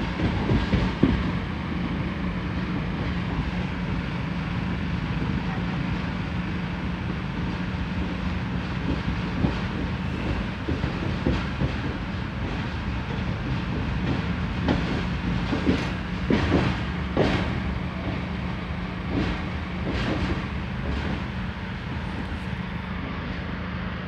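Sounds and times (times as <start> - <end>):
wheels clacking over rail joints: 0.0 - 3.8, 7.9 - 22.7
train rumbling: 0.0 - 24.0.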